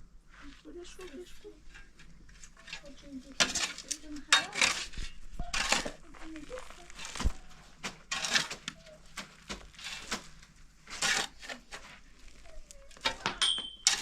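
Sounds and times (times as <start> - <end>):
irregular knocks and cracks: 7.2 - 10.5.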